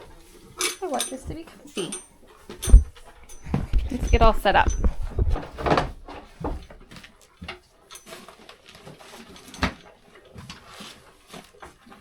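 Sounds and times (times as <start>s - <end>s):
gear knocking and rustling: 0.6s - 7.0s.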